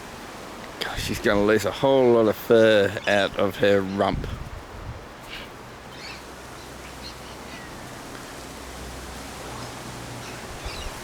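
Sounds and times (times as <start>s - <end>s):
even hiss: 0.0s - 11.0s.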